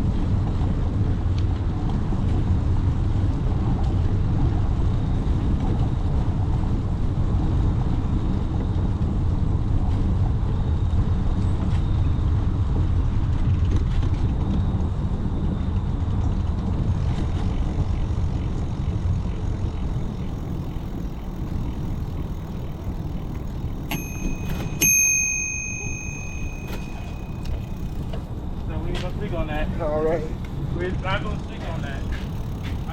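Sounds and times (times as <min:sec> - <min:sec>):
wind and riding rumble: 0:00.0 - 0:32.9
bicycle bell ringing: 0:21.2 - 0:28.4.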